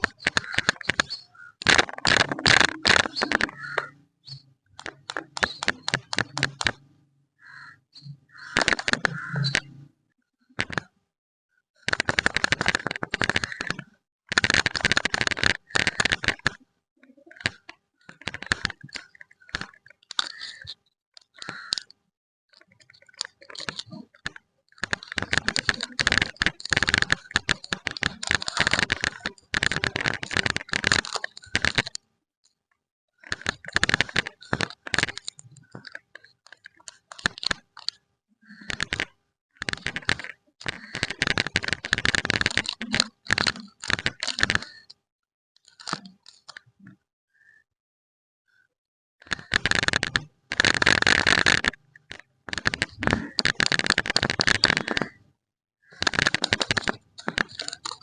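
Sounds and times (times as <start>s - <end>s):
plastic wrappers crinkling: 56.0s - 58.0s.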